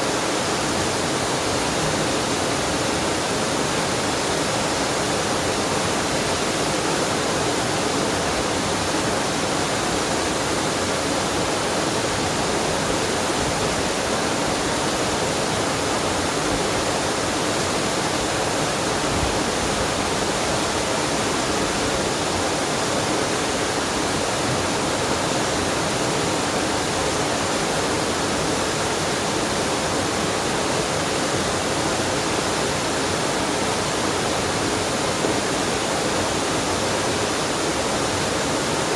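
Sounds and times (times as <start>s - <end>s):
waterfall and stream rushing: 0.0s - 38.9s.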